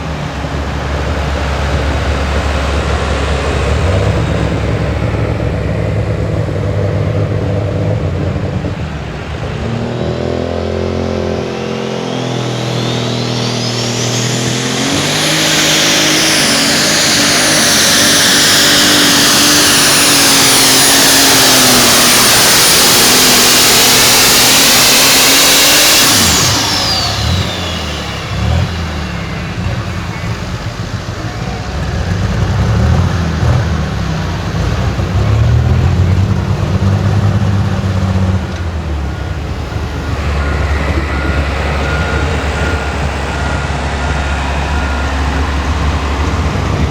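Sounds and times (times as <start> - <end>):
diesel engine under load: 0.0 - 46.9
turbo whistle: 11.7 - 34.3, 35.0 - 46.9.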